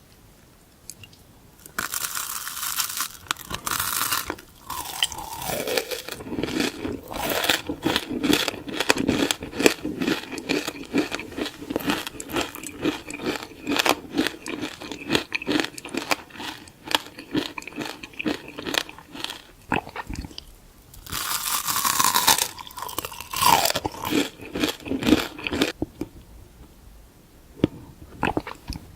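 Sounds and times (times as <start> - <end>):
wrapper crinkling and tearing: 1.6 - 8.5
crunchy bites and chewing: 1.6 - 26.1, 27.6 - 28.9.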